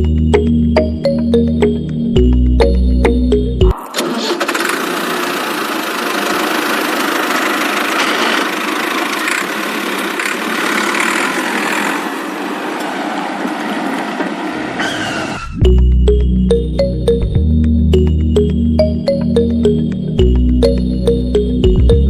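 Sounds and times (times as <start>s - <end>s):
music: 0.0s - 3.8s, 15.6s - 22.0s
small water pump motor whirring: 4.0s - 12.4s.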